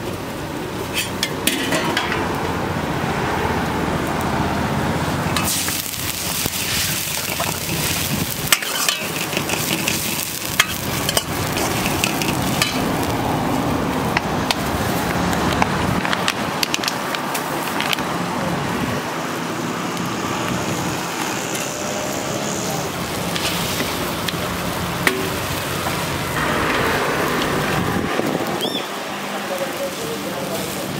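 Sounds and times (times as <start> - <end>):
gas burner: 0.0 - 30.9
vegetables sizzling in wok: 0.0 - 30.9
steel ladle scraping wok: 0.8 - 2.3, 5.4 - 13.1.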